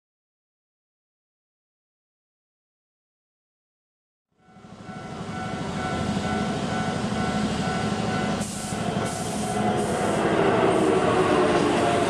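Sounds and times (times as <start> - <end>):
electric train rumbling: 4.4 - 12.0.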